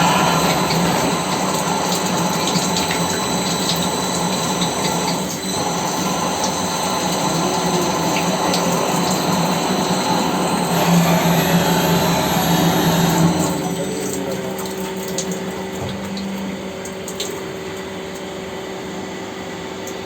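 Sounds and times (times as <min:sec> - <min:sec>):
machine hiss: 0:00.0 - 0:14.1
machine low hum: 0:00.0 - 0:20.0.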